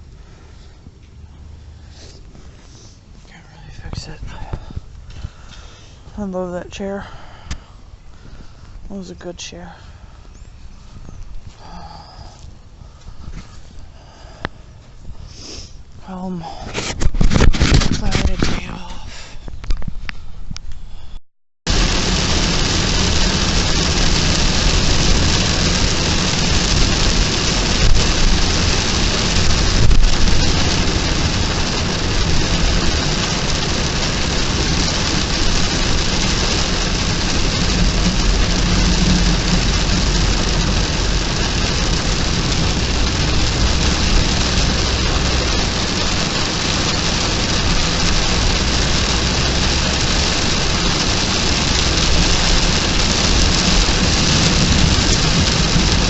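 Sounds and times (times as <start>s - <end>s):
heavy rain pouring: 0.0s - 13.2s, 13.8s - 19.2s, 21.7s - 56.0s
low rumble: 20.1s - 56.0s.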